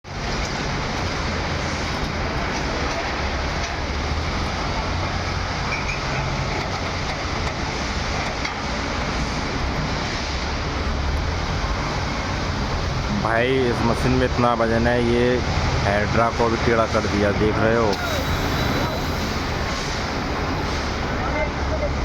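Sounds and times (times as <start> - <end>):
diesel engine droning: 0.1 - 22.0.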